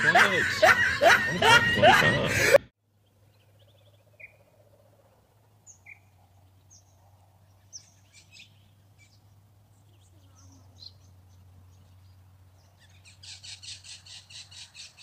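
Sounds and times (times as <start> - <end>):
faint bird chirps: 3.0 - 5.0.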